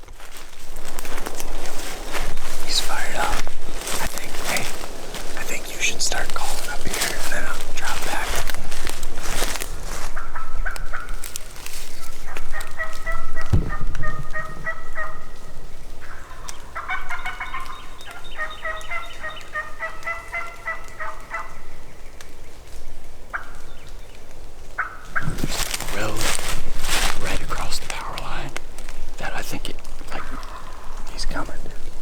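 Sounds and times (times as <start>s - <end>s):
turkey call yelping: 12.0s - 21.8s, 30.1s - 31.1s
low thump: 13.4s - 15.7s.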